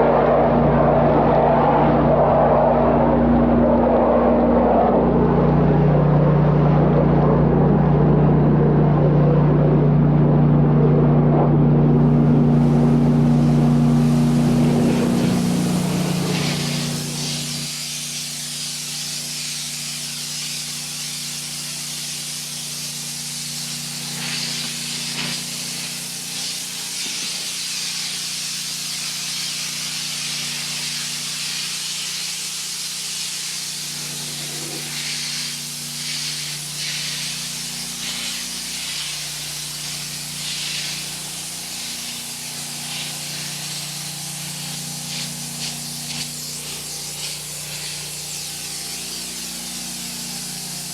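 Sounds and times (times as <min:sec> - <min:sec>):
engine humming: 0:00.0 - 0:17.7
pressure washer spray hissing: 0:12.1 - 0:50.9.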